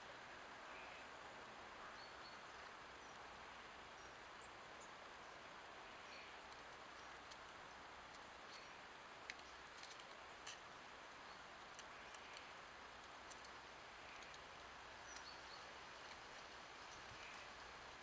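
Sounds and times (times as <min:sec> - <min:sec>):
faint steady hiss: 0:00.0 - 0:18.0
light clicks: 0:06.5 - 0:10.6, 0:11.7 - 0:15.4.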